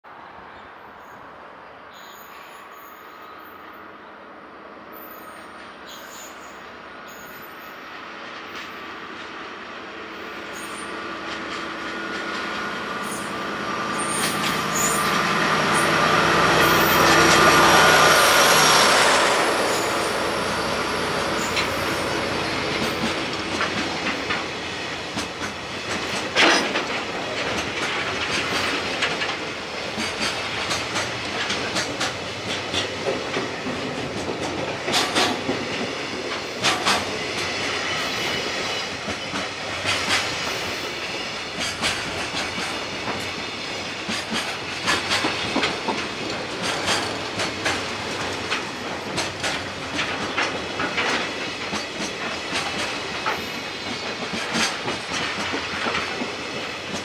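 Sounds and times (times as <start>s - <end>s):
diesel locomotive engine passing: 0.1s - 57.0s
wheels clicking over rail joints: 21.3s - 57.0s.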